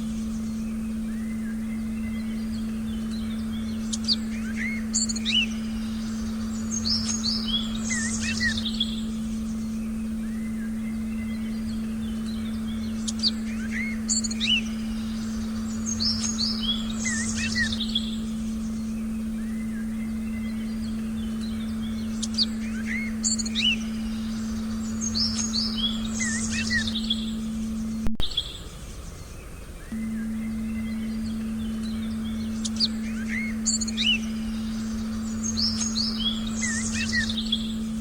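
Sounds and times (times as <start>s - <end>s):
low electronic tone: 0.0s - 28.4s, 29.9s - 38.0s
songbirds chirping: 0.0s - 38.0s.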